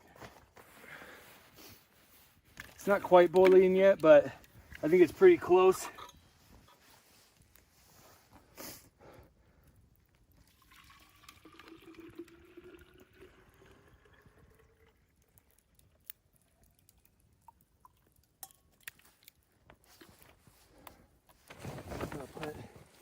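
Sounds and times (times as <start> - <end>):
water pouring into a bottle: 10.3 - 18.5.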